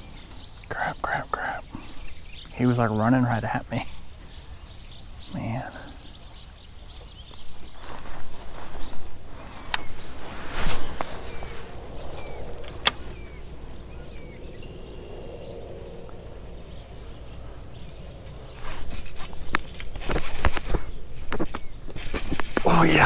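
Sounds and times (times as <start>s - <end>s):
quiet outdoor background: 0.0s - 23.0s
fishing reel clicking rattle: 18.3s - 22.6s.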